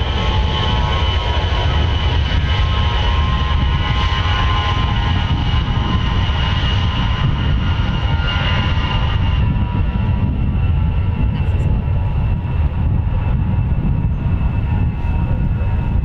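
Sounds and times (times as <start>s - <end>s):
jet aircraft engines running: 0.0s - 16.0s.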